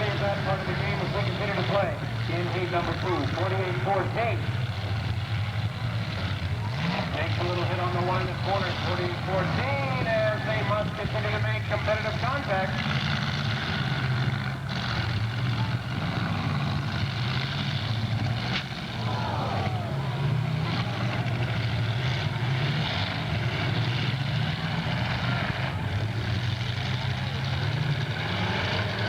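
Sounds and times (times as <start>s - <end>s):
car engines revving: 0.0s - 29.0s.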